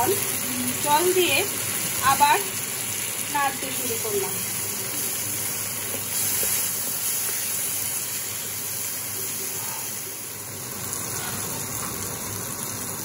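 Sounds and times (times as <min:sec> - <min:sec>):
vegetables sizzling in oil: 0:00.0 - 0:13.0
spatula stirring in pan: 0:04.5 - 0:10.1.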